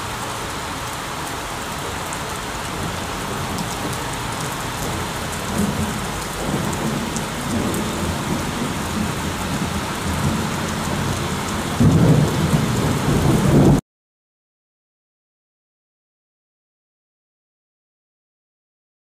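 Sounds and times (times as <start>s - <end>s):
heavy rain pouring: 0.0s - 13.8s
thunder rumbling: 2.8s - 13.8s.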